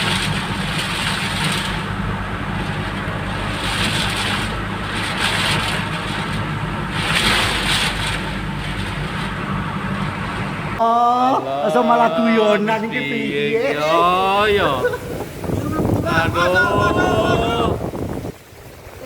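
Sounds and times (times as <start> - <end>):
gusting wind: 11.7 - 19.0.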